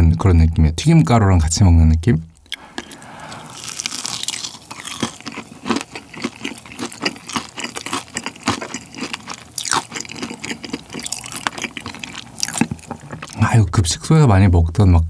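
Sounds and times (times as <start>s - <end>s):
wet mouth clicks: 2.3s - 3.8s
close chewing: 2.4s - 13.4s.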